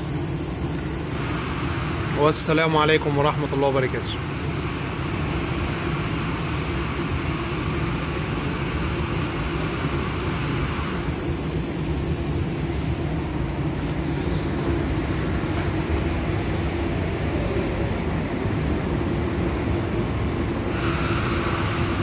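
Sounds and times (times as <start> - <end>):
hiss: 0.0 - 2.3, 4.4 - 14.0, 14.9 - 15.3, 20.8 - 22.0.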